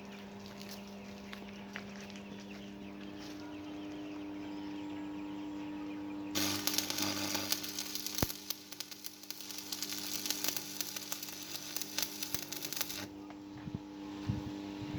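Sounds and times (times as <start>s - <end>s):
steady hum: 0.0s - 14.9s
welding arc crackling: 6.4s - 13.1s.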